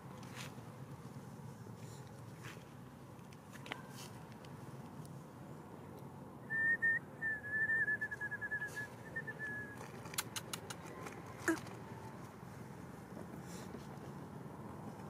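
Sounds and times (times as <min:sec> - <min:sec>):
bird whistling and trilling: 0:06.5 - 0:09.8.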